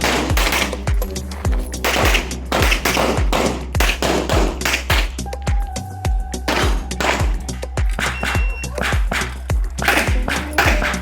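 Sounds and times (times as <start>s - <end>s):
music with heavy steady beat: 0.0s - 11.0s
held tone: 5.6s - 8.8s.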